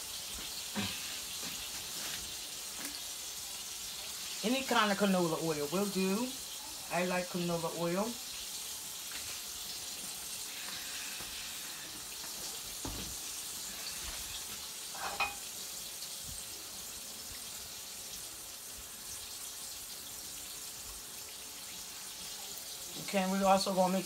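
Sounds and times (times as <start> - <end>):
meat sizzling in a skillet: 0.0 - 24.0
pan clinking: 14.9 - 15.5.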